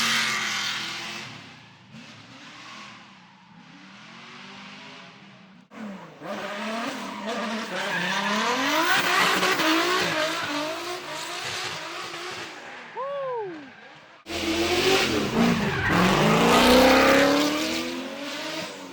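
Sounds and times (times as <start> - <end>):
car engine revving: 3.6 - 12.6, 14.2 - 18.9.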